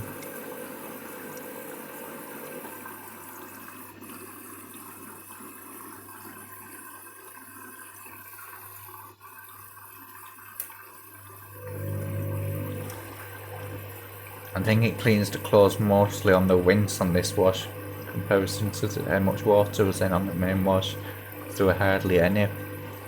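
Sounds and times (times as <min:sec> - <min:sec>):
water rushing into washing machine: 0:00.0 - 0:23.0
low machine hum: 0:11.5 - 0:23.0
loud motor hum: 0:11.6 - 0:23.0.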